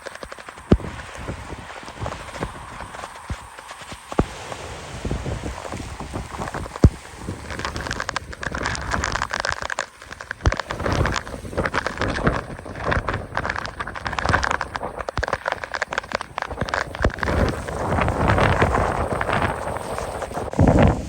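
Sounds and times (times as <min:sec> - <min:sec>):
rain hits crackling: 0:00.0 - 0:21.0
wind buffeting knocks: 0:00.0 - 0:21.0
wind rushing on microphone: 0:00.0 - 0:21.0.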